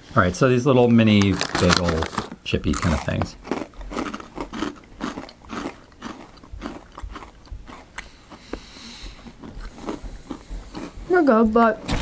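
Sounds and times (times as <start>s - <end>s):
crunching hard chips: 1.0s - 8.4s.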